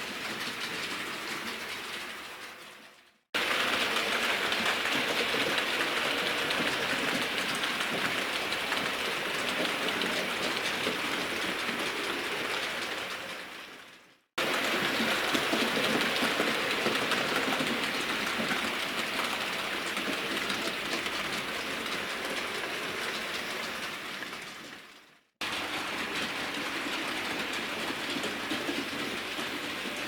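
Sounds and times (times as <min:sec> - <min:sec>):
model train running on track: 0:03.4 - 0:24.8, 0:25.4 - 0:30.0.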